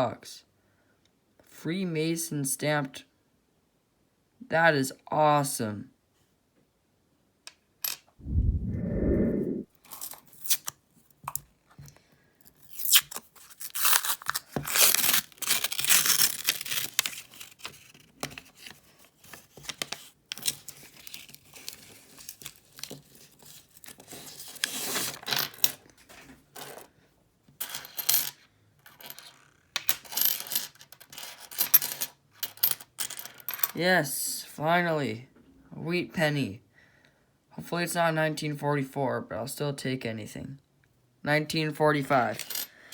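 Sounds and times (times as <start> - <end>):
paper wrappers tearing: 12.9 - 17.5.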